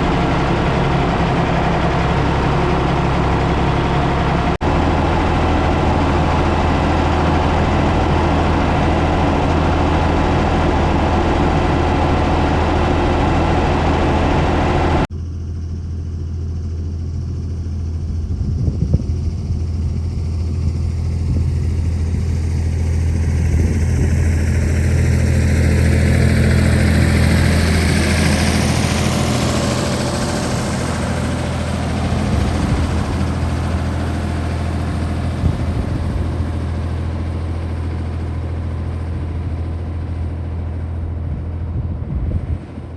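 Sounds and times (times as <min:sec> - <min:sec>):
backhoe loader engine running: 0:00.0 - 0:42.9.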